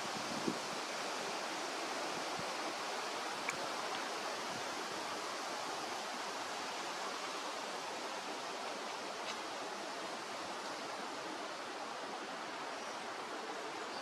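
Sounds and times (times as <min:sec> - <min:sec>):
running water rushing: 0:00.0 - 0:14.0
faint high tick: 0:03.4 - 0:04.0.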